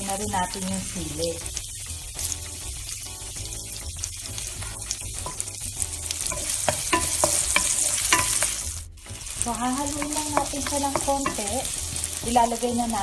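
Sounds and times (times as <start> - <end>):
food sizzling in hot oil: 0.0 - 13.0
spatula scraping and tapping pan: 3.2 - 12.6.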